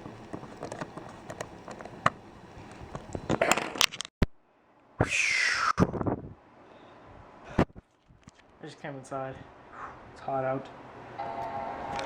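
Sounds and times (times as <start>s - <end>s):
small parts clicking and tapping: 0.0s - 2.2s
hissing rush with falling whistle: 5.0s - 5.8s.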